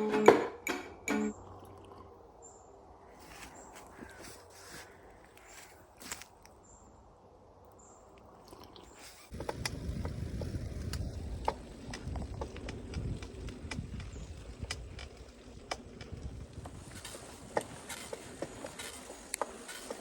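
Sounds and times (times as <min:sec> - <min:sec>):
bike clicks and rattles: 0:08.9 - 0:20.0
bike tyres rumbling: 0:08.9 - 0:20.0.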